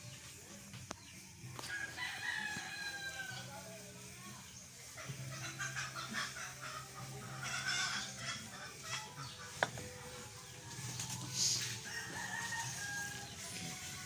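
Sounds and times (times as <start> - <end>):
rooster crowing: 1.7 - 3.5, 11.8 - 13.4.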